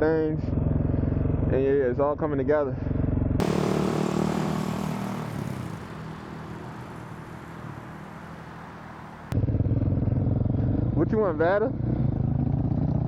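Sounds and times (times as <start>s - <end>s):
dirt bike engine running: 3.4s - 10.9s.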